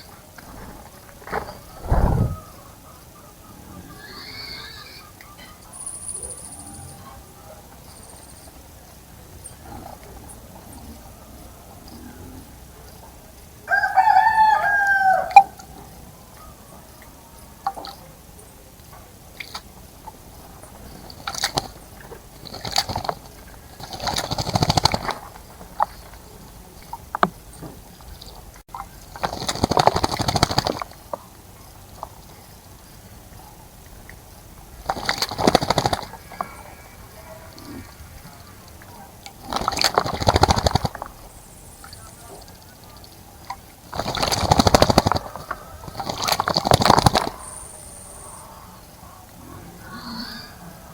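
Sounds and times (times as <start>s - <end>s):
rooster crowing: 13.7s - 15.6s, 36.1s - 38.7s
bird splashing in water: 20.9s - 21.8s, 22.4s - 26.2s, 29.1s - 31.0s, 34.7s - 41.2s, 43.4s - 47.5s.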